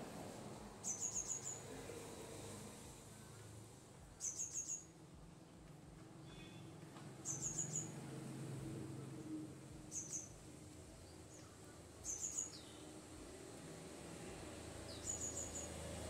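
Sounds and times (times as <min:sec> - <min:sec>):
bird chirping: 0:00.8 - 0:01.7, 0:04.2 - 0:04.9, 0:07.2 - 0:08.0, 0:09.9 - 0:10.4, 0:11.0 - 0:12.8, 0:14.9 - 0:15.8.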